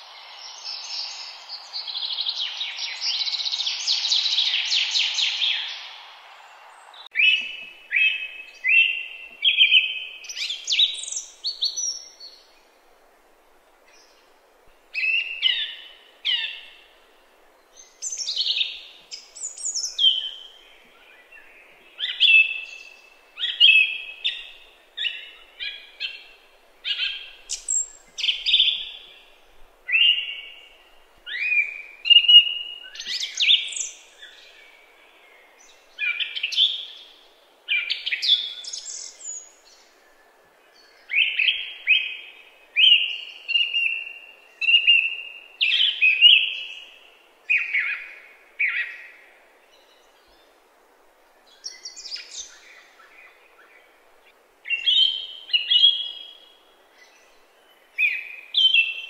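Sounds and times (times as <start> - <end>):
songbird singing whistled phrases: 7.0 - 12.4, 21.4 - 26.3, 26.9 - 29.1, 29.9 - 34.6, 37.7 - 39.8, 40.8 - 46.9, 54.7 - 56.4, 58.0 - 59.0.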